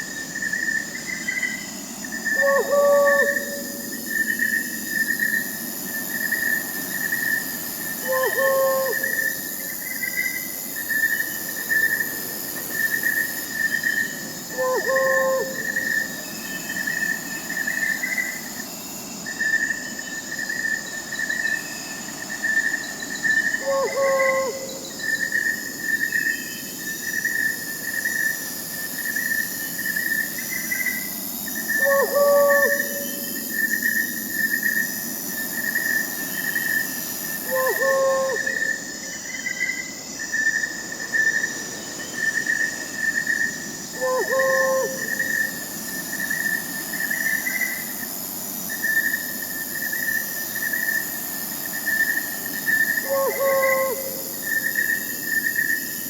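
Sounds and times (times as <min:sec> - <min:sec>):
crickets chirping: 0:00.0 - 0:56.0
high insect hiss: 0:00.0 - 0:56.0
owl hoot: 0:02.3 - 0:03.9, 0:08.0 - 0:09.4, 0:14.5 - 0:16.0, 0:23.6 - 0:24.8, 0:31.8 - 0:33.4, 0:37.4 - 0:38.7, 0:44.0 - 0:45.6, 0:53.0 - 0:54.3.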